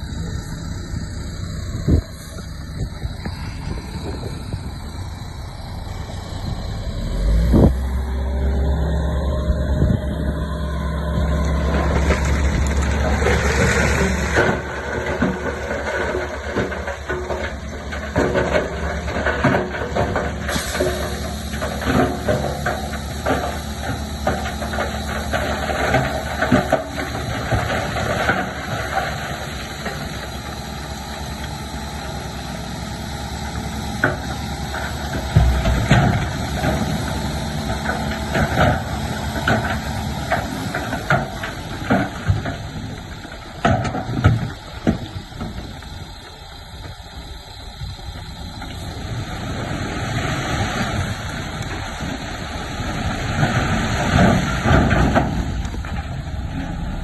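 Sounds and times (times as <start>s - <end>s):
heavy diesel engine running: 0.0s - 57.0s
knocks and clatter: 11.6s - 30.2s, 34.0s - 45.9s.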